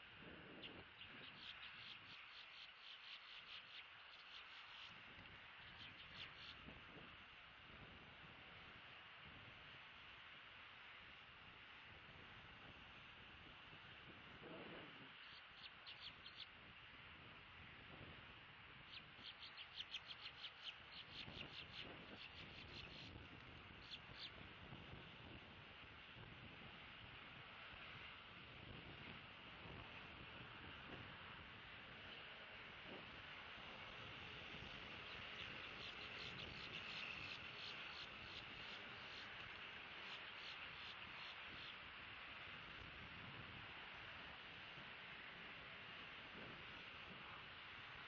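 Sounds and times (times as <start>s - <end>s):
outdoor hiss: 0.0s - 48.0s
bird chirping: 0.6s - 5.0s, 5.6s - 6.6s, 15.2s - 16.5s, 18.9s - 23.2s, 23.8s - 24.4s, 34.8s - 41.8s.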